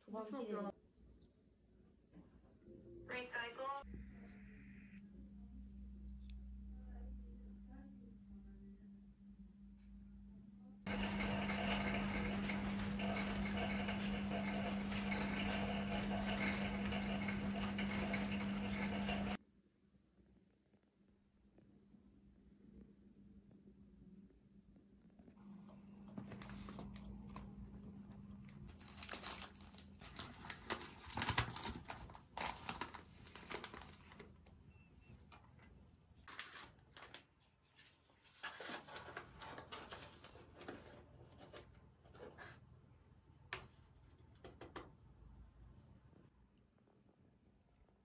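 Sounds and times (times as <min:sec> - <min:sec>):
low steady hum: 0:02.6 - 0:13.5
crinkling and rustling: 0:10.9 - 0:19.4, 0:26.0 - 0:34.6, 0:35.3 - 0:42.6.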